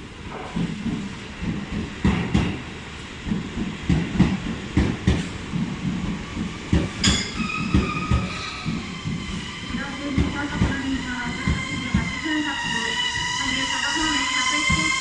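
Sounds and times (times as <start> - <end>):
train wheels clacking on rail joints: 0.3 - 9.4
high squeal: 7.0 - 10.1.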